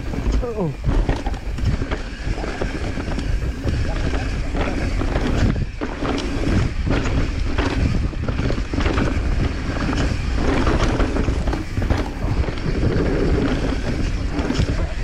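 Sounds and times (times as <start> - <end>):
bike rattling over bumps: 0.0 - 15.0
tyres rolling over dirt and rock: 0.0 - 15.0
wind on microphone: 0.0 - 15.0.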